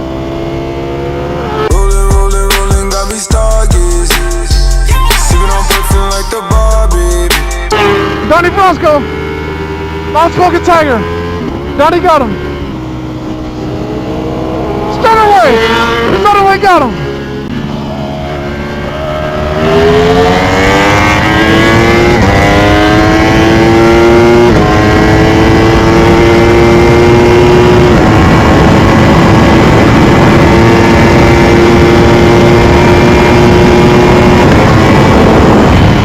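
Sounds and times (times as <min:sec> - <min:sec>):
motorcycle engine accelerating: 0:00.0 - 0:36.0
wind rush: 0:26.8 - 0:36.0.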